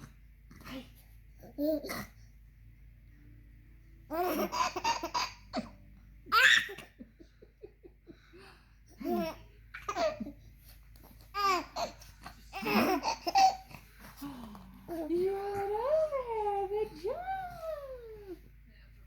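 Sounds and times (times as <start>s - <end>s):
toddler laughing: 11.4s - 13.8s.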